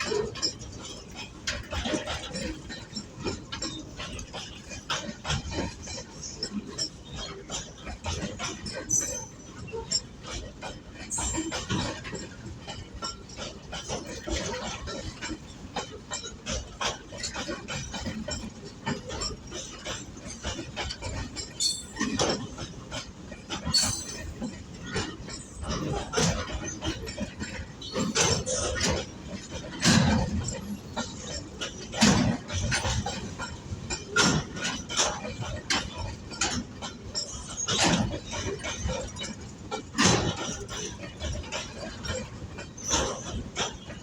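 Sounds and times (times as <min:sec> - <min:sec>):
train wheels clattering: 0:00.0 - 0:44.0
metallic clanks and knocks: 0:00.1 - 0:22.9, 0:23.5 - 0:35.1
high metallic squeal: 0:21.6 - 0:22.2, 0:23.7 - 0:24.3.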